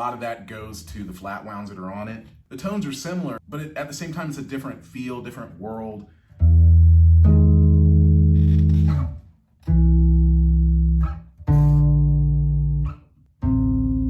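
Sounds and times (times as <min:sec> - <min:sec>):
electric bass long low notes: 0:06.4 - 0:14.0.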